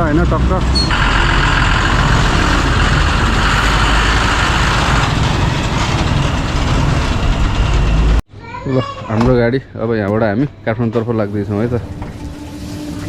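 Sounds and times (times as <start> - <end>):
diesel truck engine rumble: 0.0 - 8.2
road noise: 0.0 - 8.2.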